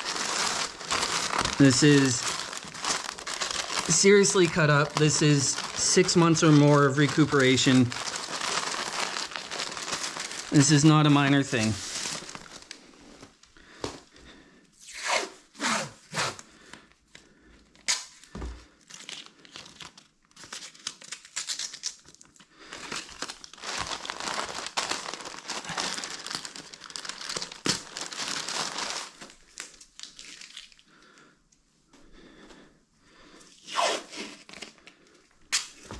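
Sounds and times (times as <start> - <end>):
sheet material crinkling and tearing: 0.0 - 13.4, 18.9 - 30.8.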